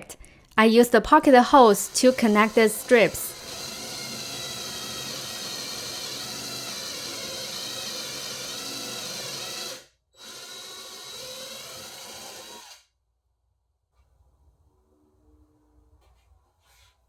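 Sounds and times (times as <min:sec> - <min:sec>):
power drill driving screws: 0:01.6 - 0:12.8.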